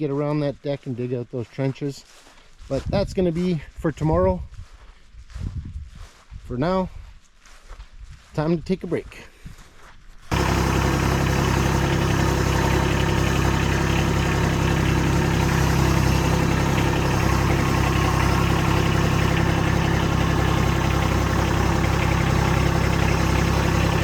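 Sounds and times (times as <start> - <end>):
tractor diesel engine idling: 10.3 - 24.0.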